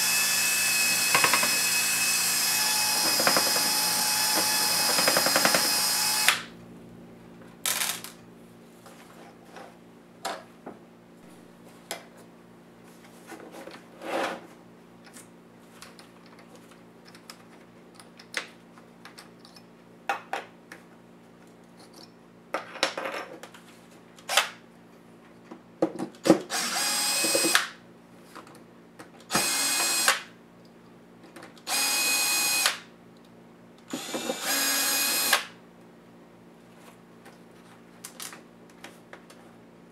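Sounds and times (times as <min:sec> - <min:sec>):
power screwdriver running: 0:00.0 - 0:06.5, 0:26.5 - 0:27.6, 0:29.3 - 0:30.2, 0:31.7 - 0:32.8, 0:33.9 - 0:35.5.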